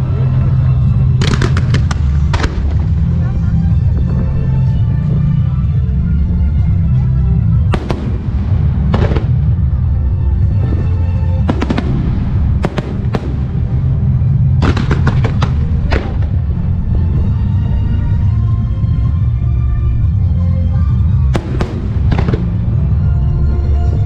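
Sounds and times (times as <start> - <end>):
loud music: 0.0 - 24.0
fireworks bangs: 0.8 - 4.8, 7.6 - 19.3, 21.2 - 23.2.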